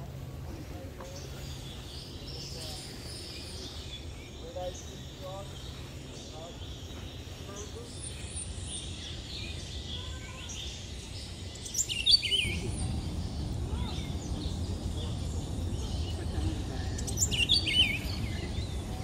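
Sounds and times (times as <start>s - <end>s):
low steady rumble: 10.9s - 19.0s.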